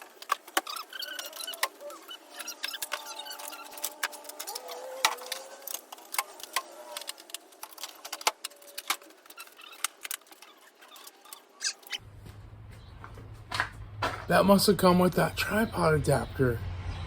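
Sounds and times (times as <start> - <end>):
small hard objects clicking and rattling: 0.0 - 12.0
squeaky rubbing: 0.0 - 12.0.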